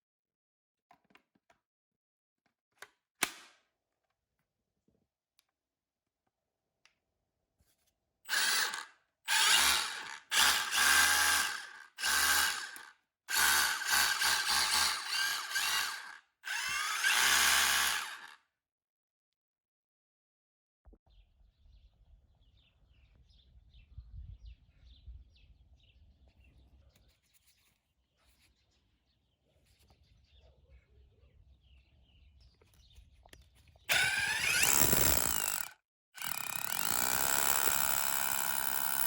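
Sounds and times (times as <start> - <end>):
rotary hammer drill running: 8.3 - 18.4, 33.9 - 39.0.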